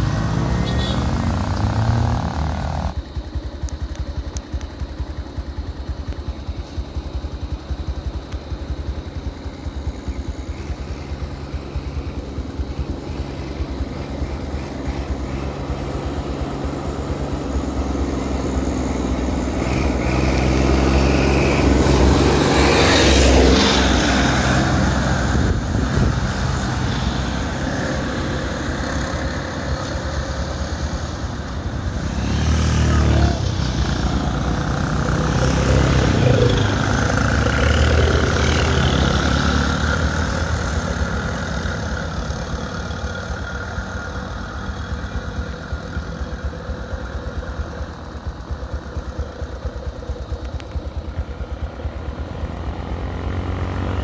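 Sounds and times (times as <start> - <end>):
vehicle passing: 0.0 - 3.0
small vehicle engine idling: 0.8 - 19.6, 27.2 - 54.0.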